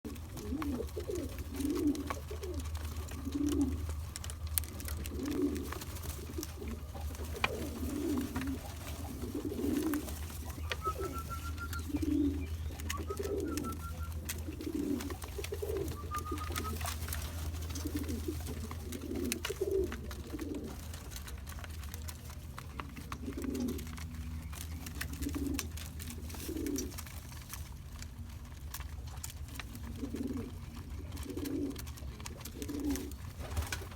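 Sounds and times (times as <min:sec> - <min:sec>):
low hum: 0:00.1 - 0:29.8
pigeons cooing: 0:00.1 - 0:33.9
short rising whistles: 0:10.6 - 0:12.3, 0:12.9 - 0:14.2.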